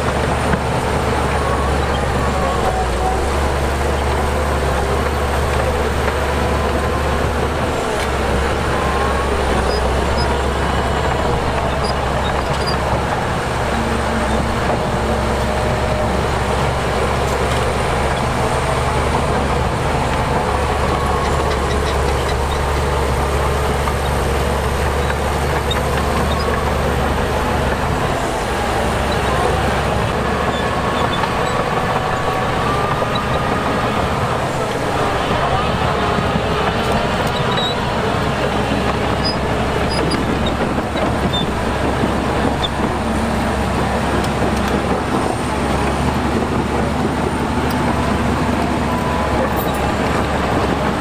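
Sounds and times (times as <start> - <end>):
diesel machinery engine drone: 0.0 - 51.0.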